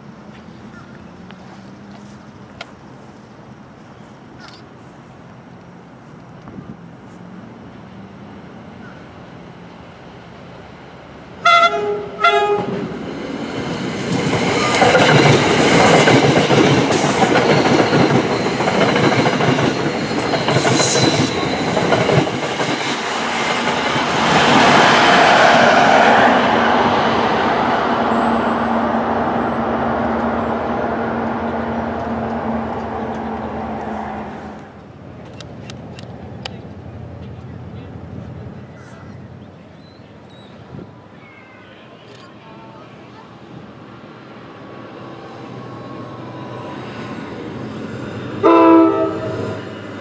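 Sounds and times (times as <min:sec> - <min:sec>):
diesel locomotive passing: 0:00.0 - 0:50.0
train horn blasts: 0:11.4 - 0:12.9, 0:48.4 - 0:49.6
train wheels clicking over rail joints: 0:13.6 - 0:25.2.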